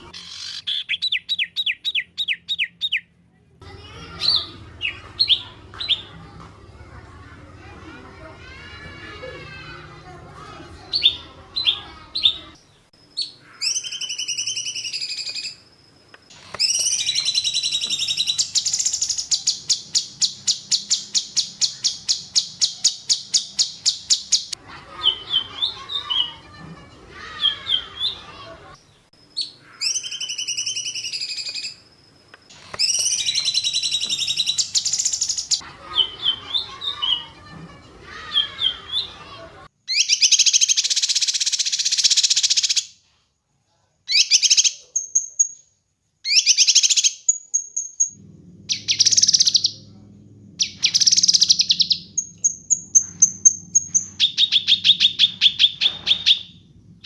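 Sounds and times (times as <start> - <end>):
rapid bird trill: 3.6 - 7.2, 10.4 - 12.6, 16.6 - 28.5, 32.8 - 42.8, 46.3 - 49.9, 50.6 - 56.6.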